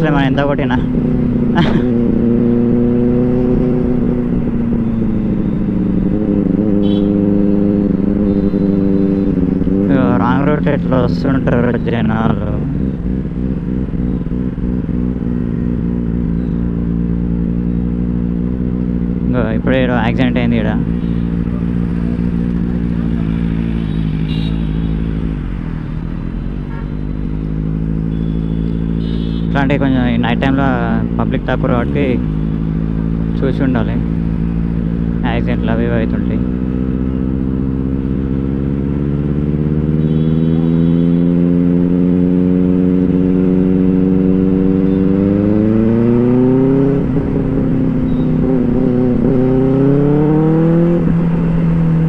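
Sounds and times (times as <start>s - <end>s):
motorbike engine and exhaust: 0.0s - 52.0s.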